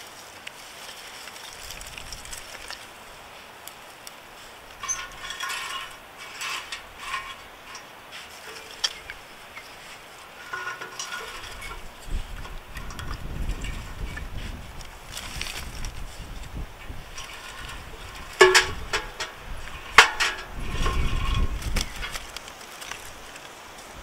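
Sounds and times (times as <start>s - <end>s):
small hard objects clattering: 0.0s - 24.0s.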